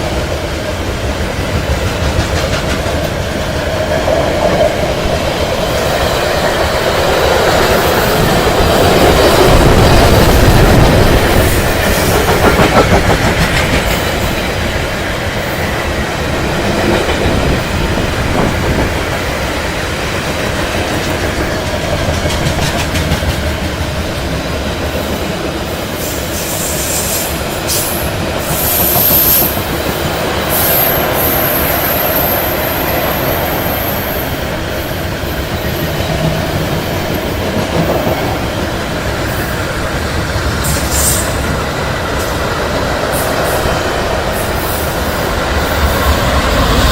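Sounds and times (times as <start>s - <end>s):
freight train wagons clattering: 0.0s - 25.1s.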